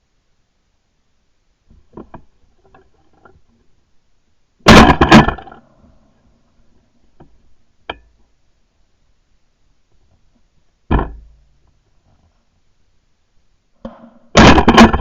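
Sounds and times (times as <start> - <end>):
shotgun blast: 4.7 - 5.4, 14.3 - 15.0.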